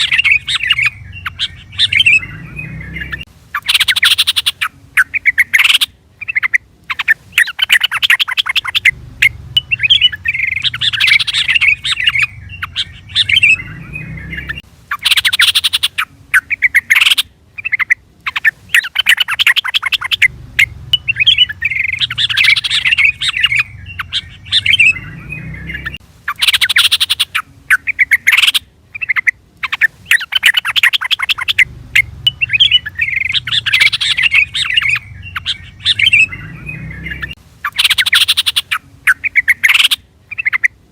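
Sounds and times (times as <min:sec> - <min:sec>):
bird chattering calls: 0:00.0 - 0:40.9
low rumble: 0:08.8 - 0:14.6, 0:20.2 - 0:26.0, 0:31.6 - 0:37.4.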